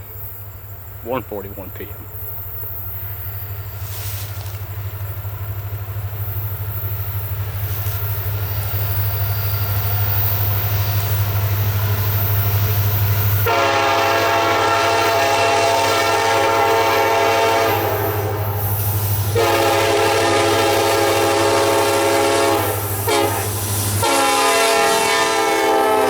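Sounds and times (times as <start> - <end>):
diesel locomotive engine rumble: 0.0 - 26.0
locomotive air horn: 13.4 - 26.0.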